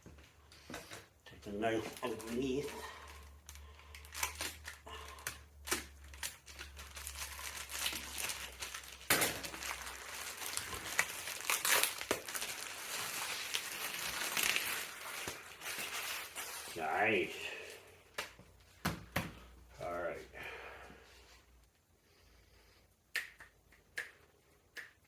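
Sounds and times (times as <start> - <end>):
plastic packaging crinkling: 1.4 - 17.1.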